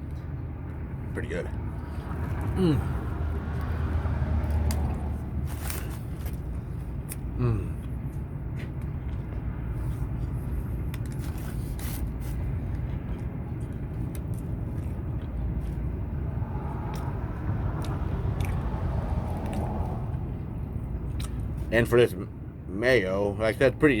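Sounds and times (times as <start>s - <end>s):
steady low rumble: 0.0s - 23.7s
chewing and biting bagel: 2.0s - 20.0s, 20.9s - 21.7s.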